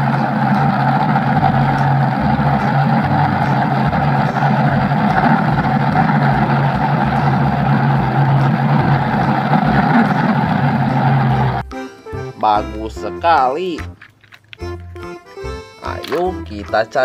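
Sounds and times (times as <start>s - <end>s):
engine-like drone: 0.0s - 11.7s.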